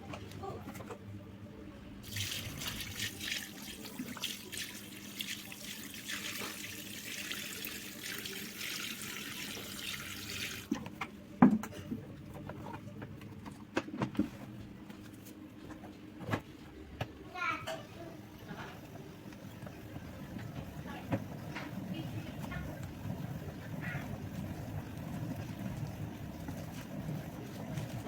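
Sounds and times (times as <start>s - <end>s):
water running and splashing: 2.0s - 10.7s.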